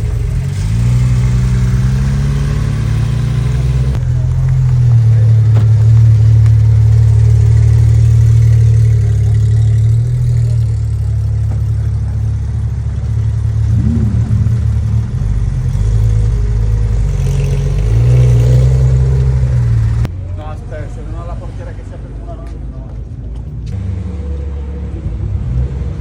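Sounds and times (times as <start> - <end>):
car engine rumbling: 0.0 - 26.0.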